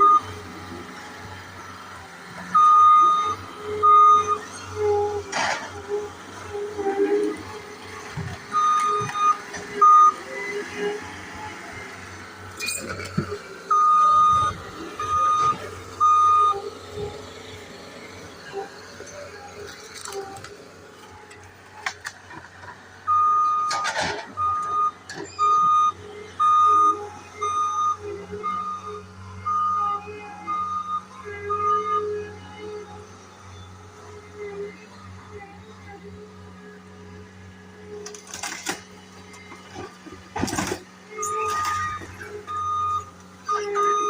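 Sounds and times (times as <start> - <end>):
engine running: 0.0 - 44.0
backup alarm beeping: 13.7 - 16.6.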